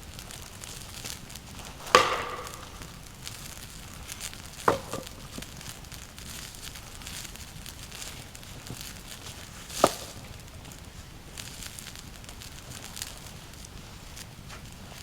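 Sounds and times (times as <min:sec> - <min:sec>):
faint crackling and rustling: 0:00.0 - 0:15.0
sharp knocks: 0:01.9 - 0:03.1, 0:04.7 - 0:05.4.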